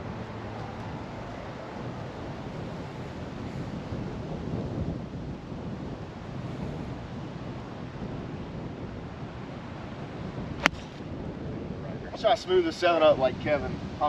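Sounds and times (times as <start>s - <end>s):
strong wind on microphone: 0.0s - 14.0s
golf club striking ball: 10.6s - 11.2s.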